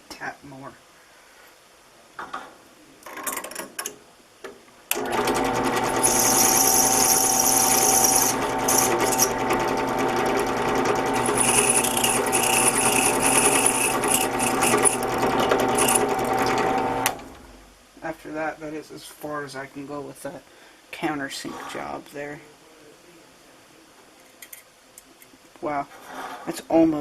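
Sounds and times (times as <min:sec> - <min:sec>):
drill press motor humming: 0:04.9 - 0:17.5
drill bit hissing on sheet metal: 0:05.2 - 0:17.2.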